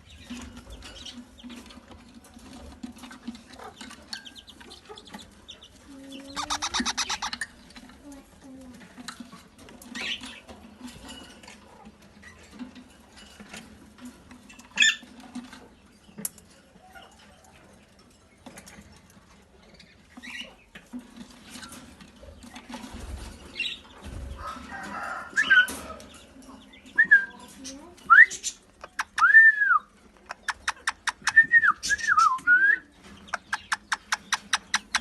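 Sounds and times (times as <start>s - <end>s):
parrots scratching and fluttering: 0.1s - 17.3s, 18.0s - 26.6s
parrot squawks: 6.4s - 7.4s.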